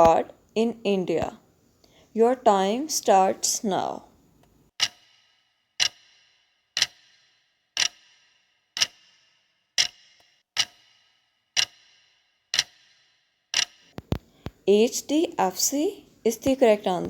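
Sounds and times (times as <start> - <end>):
countdown timer ticking: 4.8 - 5.2, 5.8 - 13.9.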